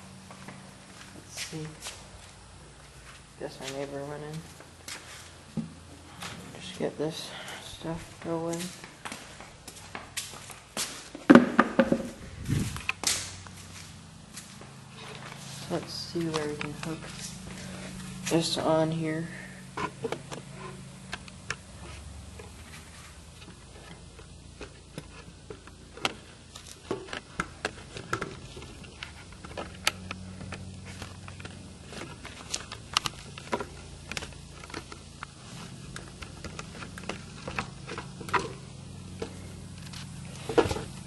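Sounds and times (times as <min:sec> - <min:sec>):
steady low hum: 0:00.0 - 0:41.0
tripod clicks and knocks: 0:11.3 - 0:12.2.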